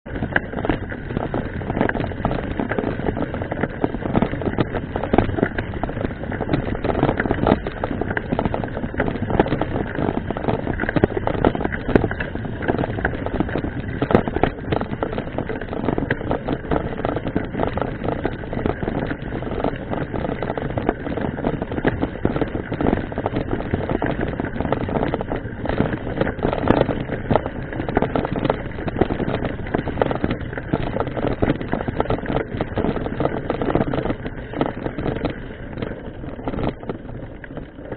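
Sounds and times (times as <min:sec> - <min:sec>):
bike rattling and knocking: 0:00.0 - 0:37.9
bike tyre noise: 0:00.1 - 0:37.9.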